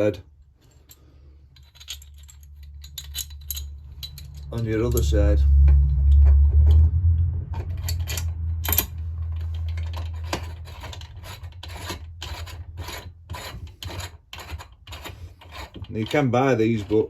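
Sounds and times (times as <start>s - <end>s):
low hum: 2.0s - 13.1s
metal rasping strokes: 7.6s - 17.0s.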